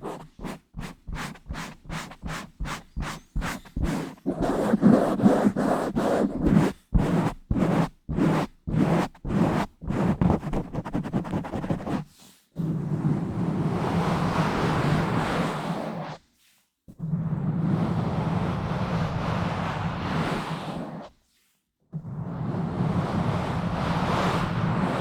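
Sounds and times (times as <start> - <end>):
microphone being scratched and rubbed: 0.0 - 13.4.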